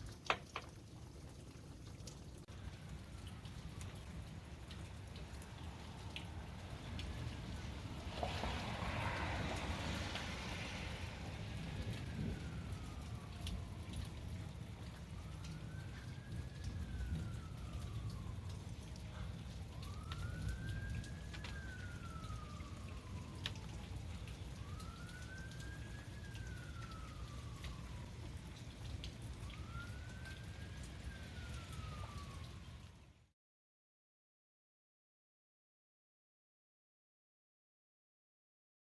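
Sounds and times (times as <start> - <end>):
rain and hail storm: 0.0 - 33.2
siren wailing: 2.5 - 33.1.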